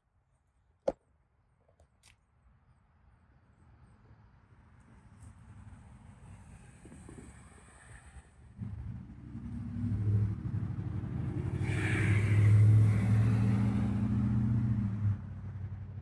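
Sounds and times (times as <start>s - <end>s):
low engine-like hum: 3.6s - 16.0s.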